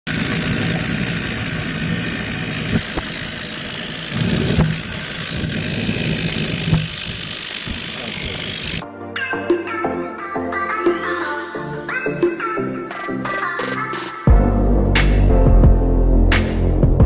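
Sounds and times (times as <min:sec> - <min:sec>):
small jet engine running: 0:00.1 - 0:08.8.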